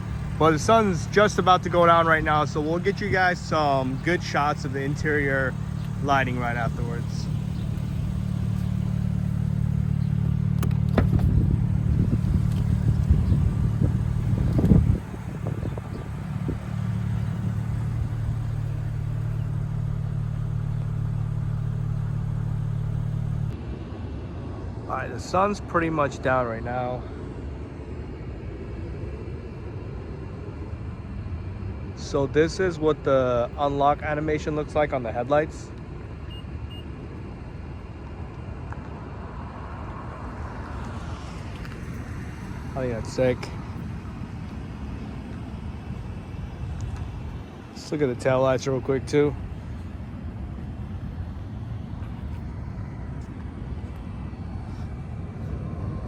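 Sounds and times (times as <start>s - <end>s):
car engine idling: 0.0s - 23.6s, 35.8s - 56.0s
distant road traffic rumble: 0.0s - 56.0s.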